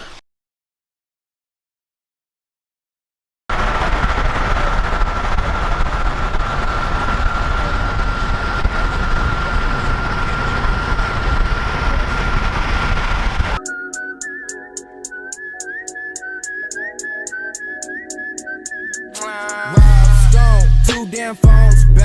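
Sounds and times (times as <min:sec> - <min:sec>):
high-pitched whine: 0:03.5 - 0:13.6
moving vehicle rumble: 0:03.5 - 0:13.6.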